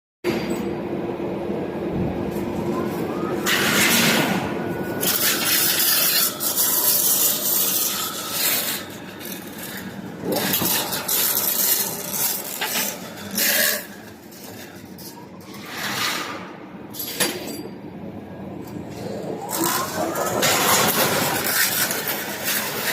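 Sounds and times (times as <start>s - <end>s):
factory machine humming: 0.3s - 22.9s
rubbing scraping noise: 5.0s - 14.6s.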